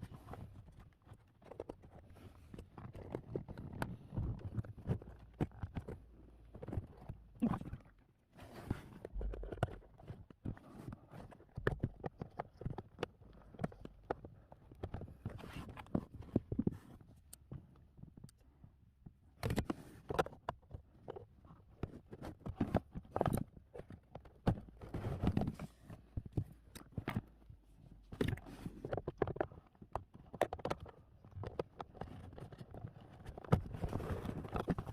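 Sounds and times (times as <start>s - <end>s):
plastic clicks and knocks: 28.1s - 34.9s.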